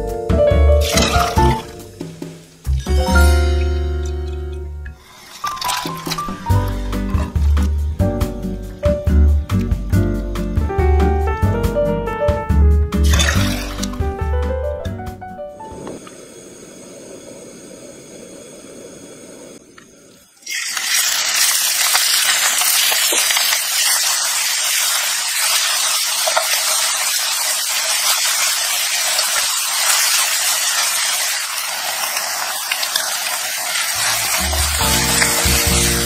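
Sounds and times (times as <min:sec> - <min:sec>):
meat sizzling in a wok: 0:00.8 - 0:04.0, 0:05.0 - 0:07.6, 0:13.0 - 0:14.0, 0:20.4 - 0:36.0.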